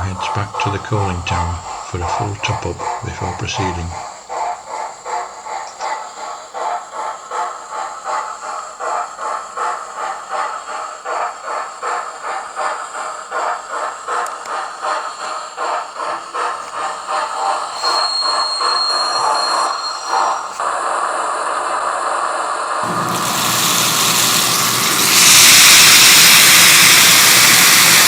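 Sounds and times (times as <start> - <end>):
high steady tone: 0.0 - 4.0
model train steam chuffs: 0.0 - 28.0.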